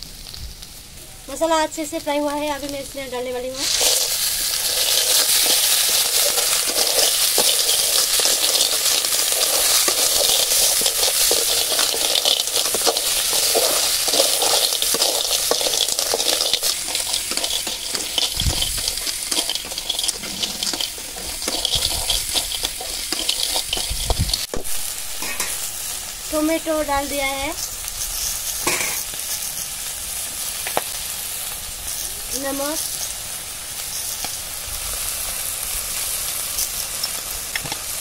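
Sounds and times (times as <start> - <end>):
food sizzling in oil: 0.0 - 38.0
metal spatula clicking and scraping: 3.6 - 24.5.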